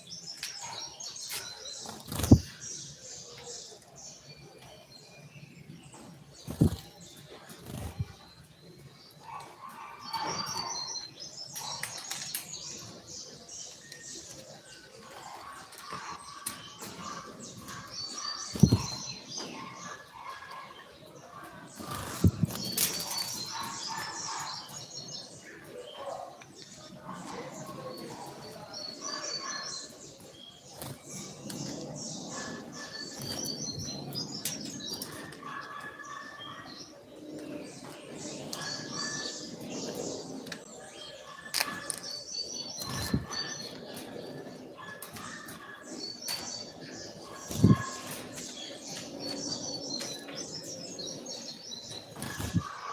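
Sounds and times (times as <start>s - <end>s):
bird song: 0.0s - 52.9s.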